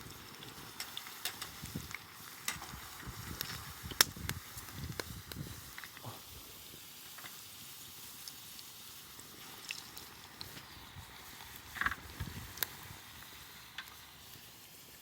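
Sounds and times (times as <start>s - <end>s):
campfire crackling and popping: 0.0s - 15.0s
fire hissing: 0.0s - 15.0s.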